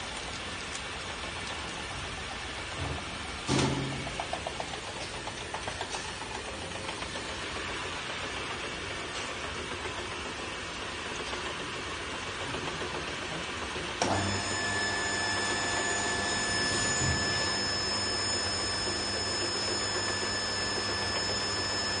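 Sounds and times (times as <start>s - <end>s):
high-pitched whines: 14.1s - 22.0s.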